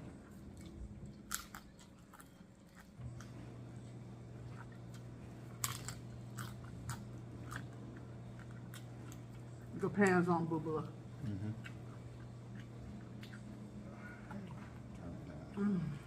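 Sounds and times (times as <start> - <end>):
chewing: 0.2 - 3.5, 4.3 - 9.7, 11.2 - 15.6
crunching taco shells: 0.4 - 3.4, 4.4 - 9.6.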